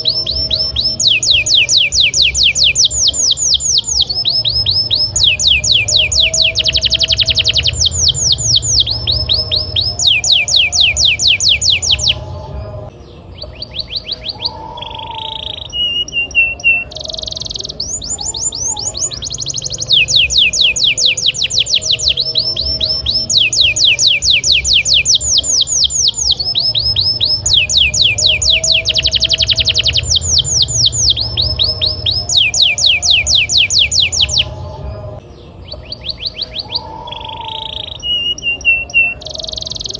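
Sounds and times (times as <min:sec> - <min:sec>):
low hum: 0:00.0 - 0:13.6, 0:17.6 - 0:35.6
canary singing trills: 0:00.0 - 0:39.9.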